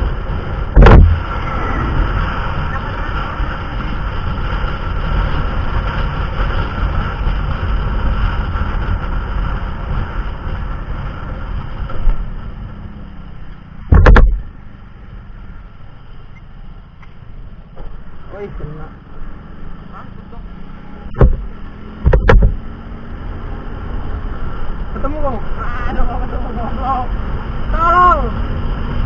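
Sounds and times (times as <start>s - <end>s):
wind rumble: 0.0s - 29.0s
loud short thump: 0.8s - 1.3s, 13.9s - 14.4s, 21.1s - 22.6s.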